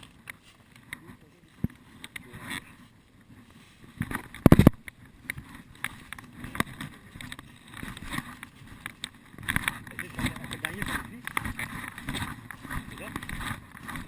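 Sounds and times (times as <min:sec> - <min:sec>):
rustling through undergrowth: 0:00.0 - 0:14.0.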